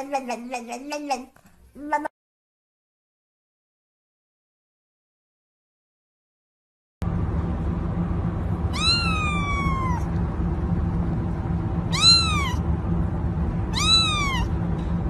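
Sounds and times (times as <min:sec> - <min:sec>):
steady low hum: 0:07.0 - 0:15.0
cat meowing: 0:08.7 - 0:10.1, 0:11.9 - 0:12.6, 0:13.7 - 0:14.6.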